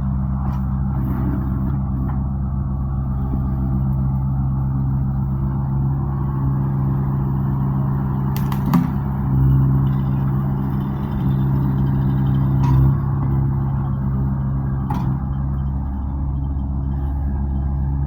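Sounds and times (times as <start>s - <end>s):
engine running low: 0.0s - 18.0s
sharp knocks: 8.4s - 9.1s.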